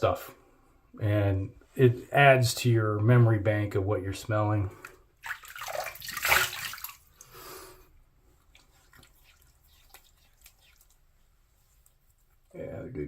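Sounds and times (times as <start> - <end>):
water drips: 4.7 - 7.3, 8.5 - 11.0
tap water splashing into sink: 5.2 - 7.1.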